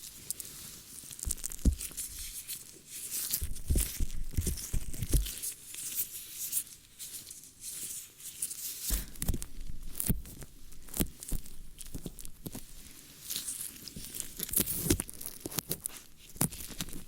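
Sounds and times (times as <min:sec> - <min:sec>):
scratching and crackling on microphone: 0:00.0 - 0:17.0
soft low thumps: 0:01.3 - 0:01.9.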